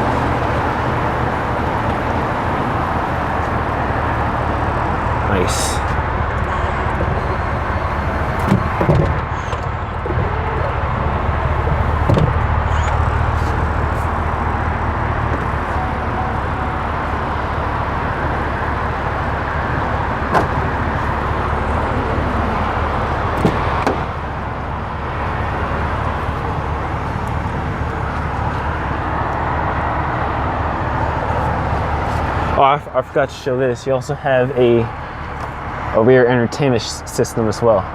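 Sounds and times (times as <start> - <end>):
car engine humming: 0.0 - 37.9
car door latch clicks: 20.3 - 20.6, 23.4 - 24.1.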